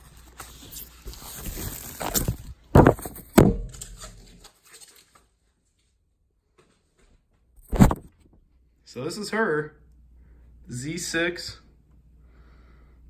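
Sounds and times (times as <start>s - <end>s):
packaging rustling: 0.0s - 5.3s
loud thumps: 2.7s - 4.3s.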